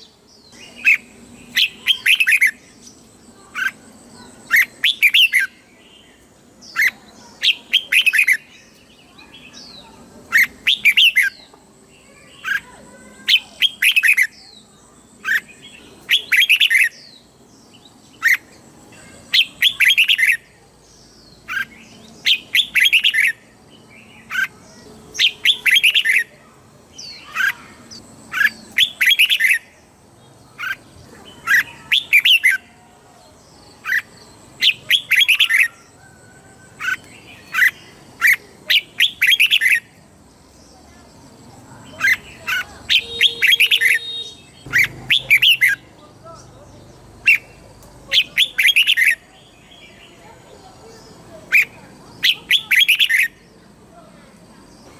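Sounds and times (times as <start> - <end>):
bulbul singing: 0.0 - 54.9.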